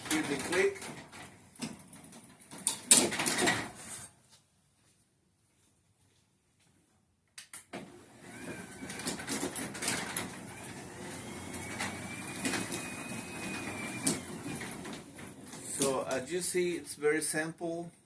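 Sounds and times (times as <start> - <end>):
garage door opener running: 7.8 - 16.2
faint motor whine: 10.4 - 15.1.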